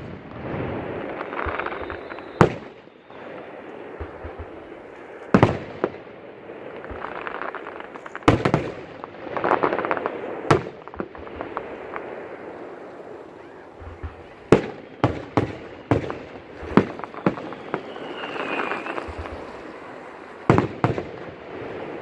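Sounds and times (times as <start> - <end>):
fireworks bangs: 0.0 - 22.0
fireworks crackling: 0.0 - 22.0
faint falling whistle: 1.1 - 5.3, 13.2 - 20.9.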